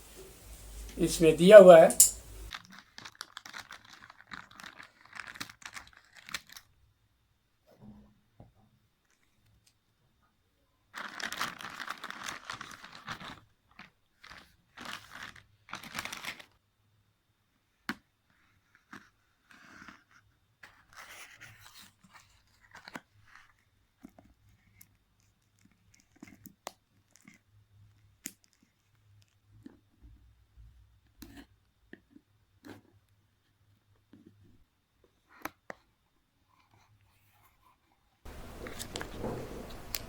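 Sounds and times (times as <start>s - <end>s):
plastic wrap tearing and crinkling: 2.5s - 6.7s, 11.0s - 13.4s, 14.3s - 16.5s.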